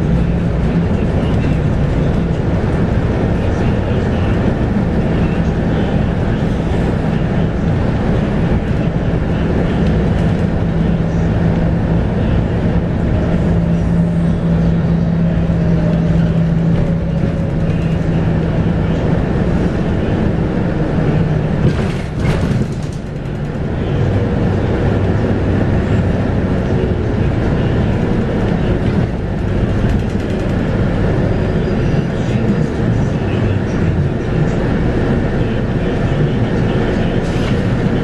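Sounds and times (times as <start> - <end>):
bus diesel engine droning: 0.0 - 38.0.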